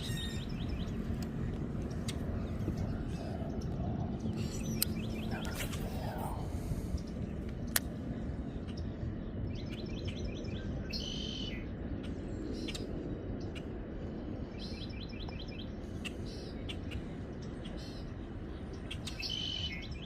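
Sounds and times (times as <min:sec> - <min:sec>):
songbird singing: 0:00.0 - 0:20.0
steady low rumble: 0:00.0 - 0:20.0.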